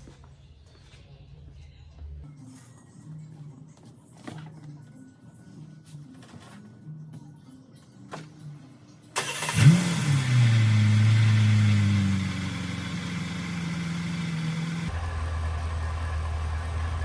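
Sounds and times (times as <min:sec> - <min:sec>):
car engine starting and idling: 0:09.2 - 0:17.0.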